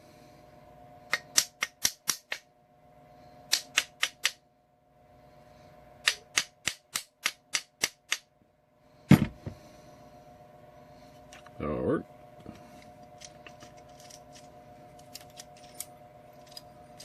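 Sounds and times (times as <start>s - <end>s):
heavy deep thud: 9.1s - 9.6s.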